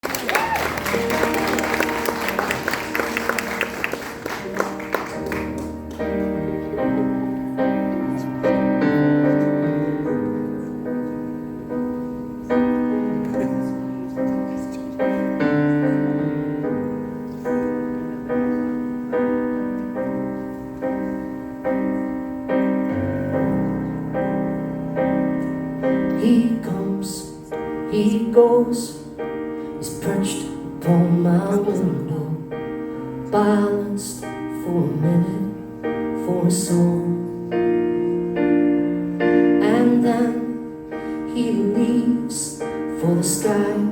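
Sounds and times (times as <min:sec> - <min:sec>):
audience applause: 0:00.0 - 0:06.3
piano chords ringing: 0:00.0 - 0:43.9.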